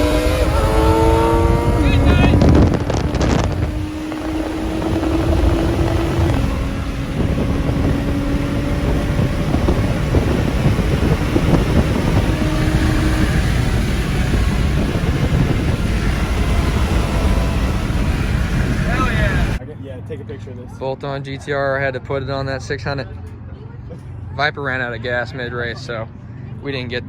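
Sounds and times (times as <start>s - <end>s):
car engine droning: 0.0s - 21.0s
road and wind noise: 0.0s - 27.0s.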